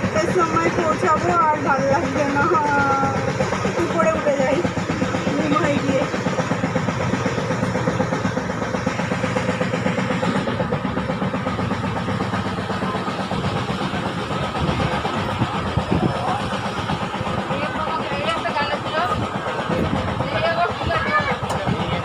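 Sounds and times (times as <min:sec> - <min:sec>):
train carriage running rumble: 0:00.0 - 0:22.0.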